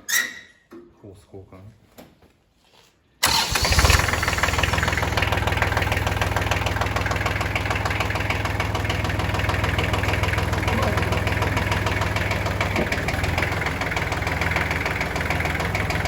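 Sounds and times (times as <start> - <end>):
tractor engine chugging: 3.2 - 16.0.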